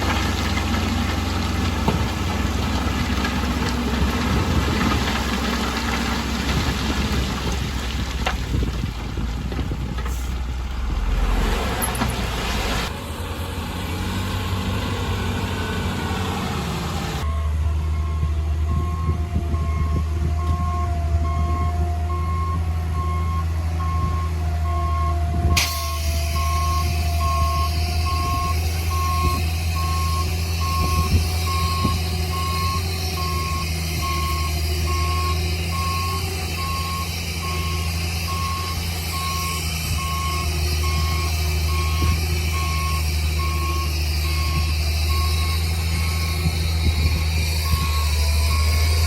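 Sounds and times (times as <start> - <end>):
diesel engine running: 0.0 - 49.0
reversing alarm beeping: 17.3 - 49.0.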